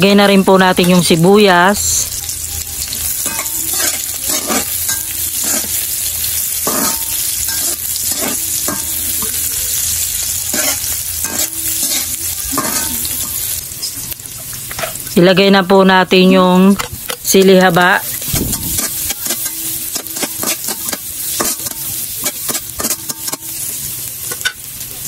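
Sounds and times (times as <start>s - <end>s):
onion and garlic sizzling in oil: 0.0s - 25.0s
spatula scraping and stirring: 3.1s - 14.0s, 18.1s - 24.6s.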